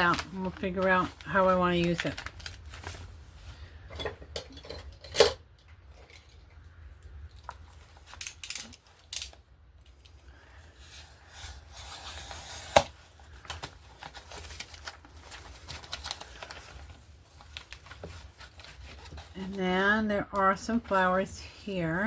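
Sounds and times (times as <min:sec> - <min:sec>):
paper rustling and ripping: 0:00.0 - 0:03.4, 0:11.0 - 0:19.6.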